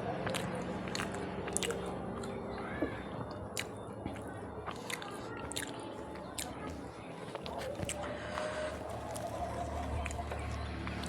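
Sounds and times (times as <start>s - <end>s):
person chewing food: 0.0s - 11.0s
wet mouth clicks and smacks: 0.2s - 2.4s, 3.5s - 5.8s.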